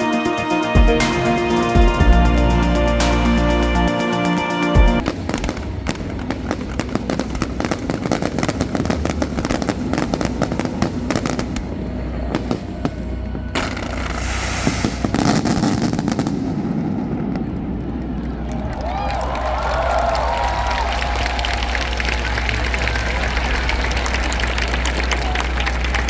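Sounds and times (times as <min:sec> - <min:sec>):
fireworks crackling: 0:13.6 - 0:17.6
fireworks hissing rush: 0:13.7 - 0:16.4.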